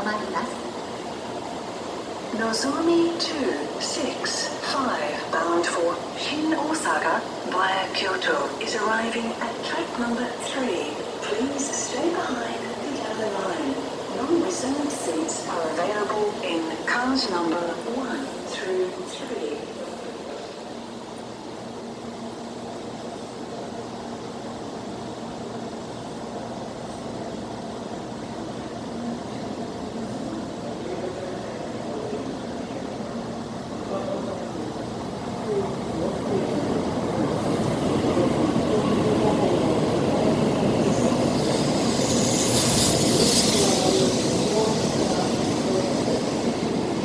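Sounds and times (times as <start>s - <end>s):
train rolling rumble: 0.0s - 47.0s
high hiss: 37.4s - 47.0s.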